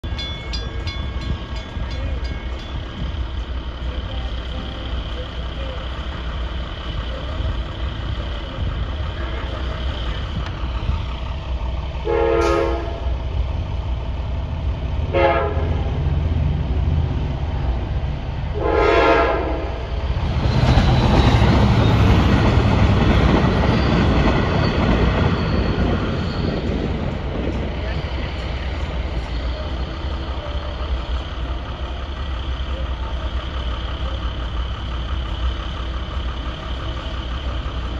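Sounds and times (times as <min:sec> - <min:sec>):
train wheels rumbling on rails: 0:00.0 - 0:37.9
train horn blasts: 0:12.0 - 0:13.2, 0:15.0 - 0:16.1, 0:18.5 - 0:19.8.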